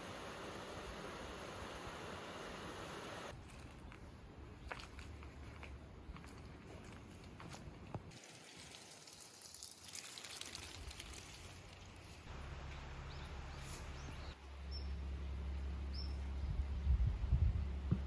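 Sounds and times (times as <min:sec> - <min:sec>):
steady background hiss: 0:00.0 - 0:03.3.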